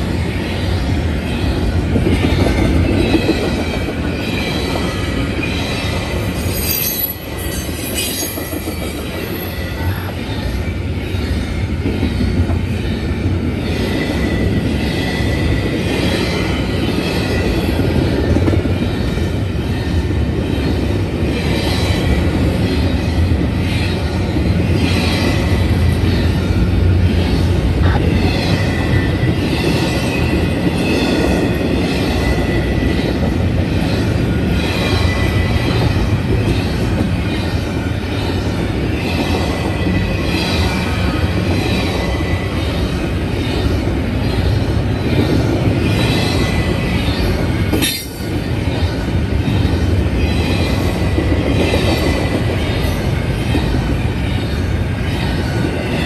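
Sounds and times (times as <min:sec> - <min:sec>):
steel wheels rumbling on rail: 0:00.0 - 0:56.0
high wheel squeal: 0:06.3 - 0:09.1.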